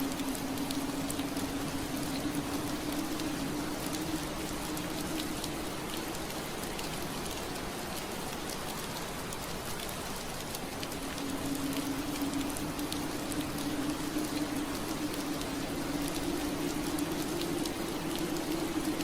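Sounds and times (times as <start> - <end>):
rain on window glass: 0.0 - 19.0
low steady hum: 10.8 - 19.0.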